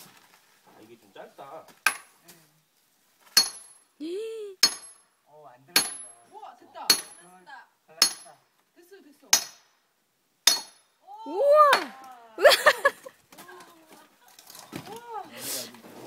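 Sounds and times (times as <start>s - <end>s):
hammer striking metal: 3.4s - 3.8s, 8.0s - 8.4s, 10.5s - 10.8s.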